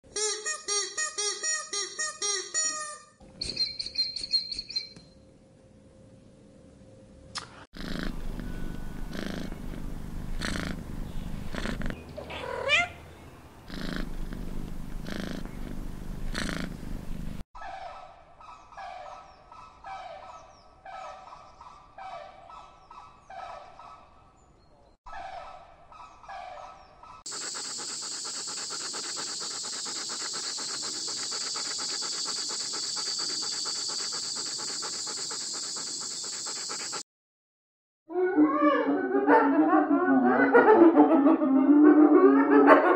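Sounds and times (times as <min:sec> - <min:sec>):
cat purring: 0:07.8 - 0:08.5, 0:09.1 - 0:12.9, 0:13.6 - 0:17.4.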